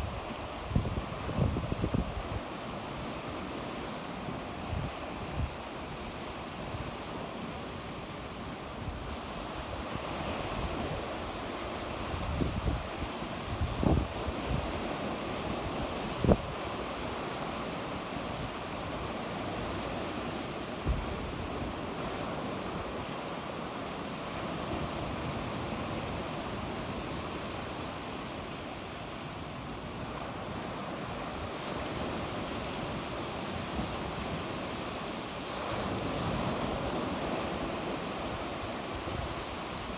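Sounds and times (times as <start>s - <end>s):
wind buffeting microphone: 0.0s - 2.5s
wind on microphone: 0.0s - 3.7s, 8.7s - 17.6s
sea waves washing onto shore: 0.0s - 39.9s.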